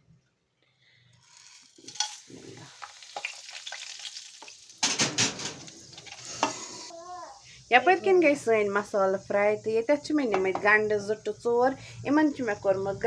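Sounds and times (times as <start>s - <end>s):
spices sizzling in hot oil: 1.1s - 9.6s.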